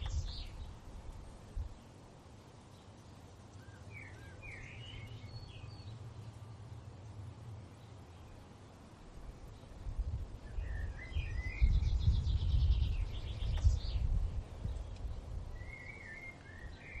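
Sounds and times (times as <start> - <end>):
birds chirping: 0.0 - 2.0, 2.6 - 17.0
bird trill: 15.6 - 17.0.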